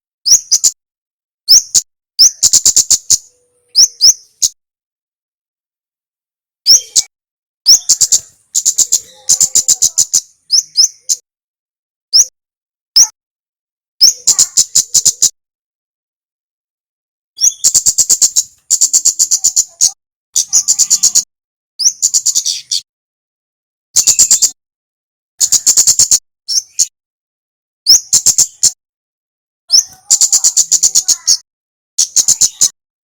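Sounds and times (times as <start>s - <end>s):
songbird singing: 0.2s - 0.8s, 1.5s - 4.6s, 6.7s - 7.1s, 7.7s - 11.2s, 12.1s - 12.4s, 14.0s - 15.4s, 17.4s - 22.9s, 24.0s - 24.6s, 25.4s - 27.0s, 29.7s - 31.4s, 32.0s - 32.8s.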